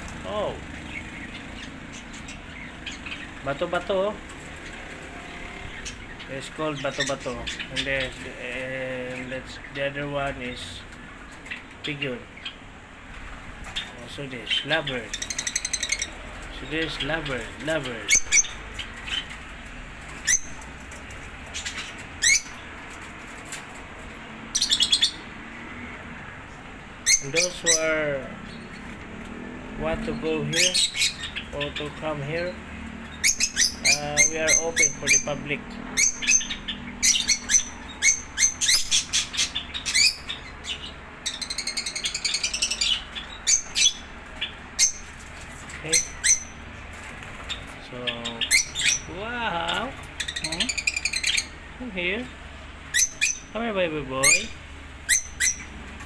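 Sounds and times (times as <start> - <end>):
lovebirds chirping: 0.0 - 56.0.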